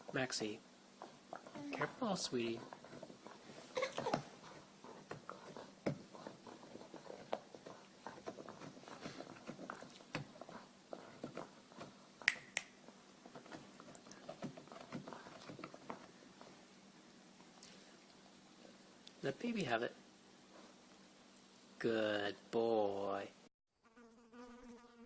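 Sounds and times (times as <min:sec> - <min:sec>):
dog gnawing on a bone: 0:04.0 - 0:12.0, 0:13.2 - 0:16.2.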